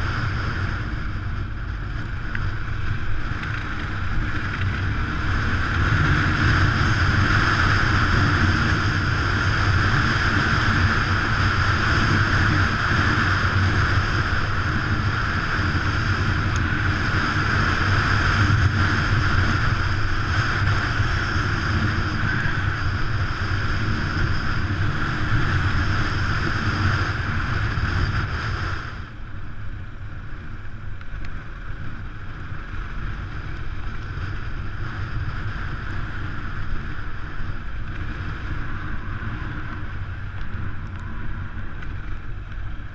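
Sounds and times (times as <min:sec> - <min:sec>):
motorcycle engine running: 0:00.0 - 0:42.9
wind rushing over microphone: 0:00.0 - 0:42.9.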